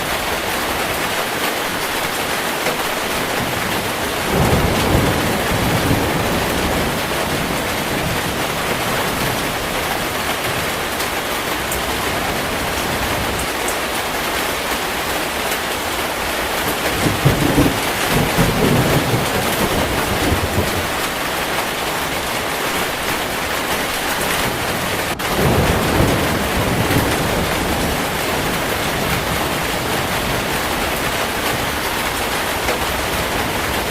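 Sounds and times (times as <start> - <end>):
heavy rain falling: 0.0 - 33.9
low thunder rolls: 3.2 - 13.5, 16.6 - 21.2, 24.2 - 33.9.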